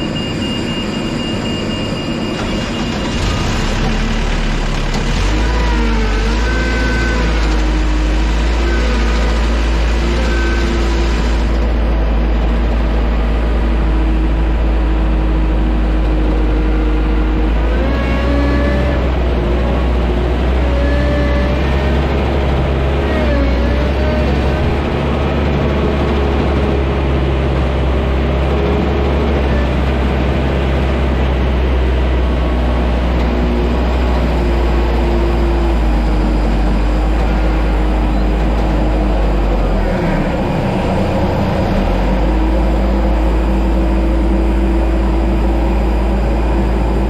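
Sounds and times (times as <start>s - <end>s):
ground vehicle engines running: 0.0s - 47.0s
loud steady low rumble: 0.0s - 47.0s.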